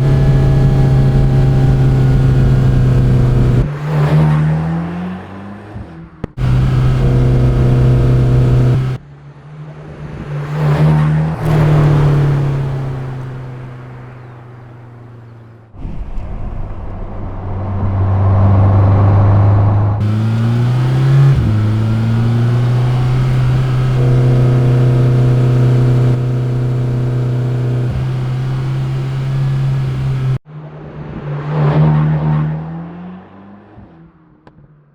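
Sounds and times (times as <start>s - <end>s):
car engine revving under load: 0.0s - 9.0s, 10.5s - 15.8s, 17.5s - 30.4s.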